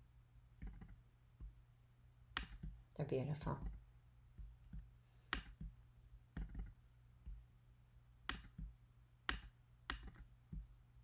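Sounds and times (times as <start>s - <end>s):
low electrical hum: 0.0s - 11.0s
computer mouse clicks: 0.6s - 1.0s, 2.4s - 2.8s, 4.7s - 5.7s, 8.3s - 8.7s, 9.3s - 10.3s.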